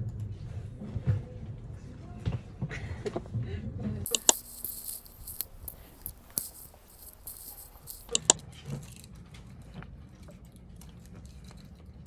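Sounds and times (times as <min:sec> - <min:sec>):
light ticks: 0:04.1 - 0:08.2
sharp clicks: 0:04.1 - 0:08.2
small hard objects rattling: 0:04.1 - 0:08.2.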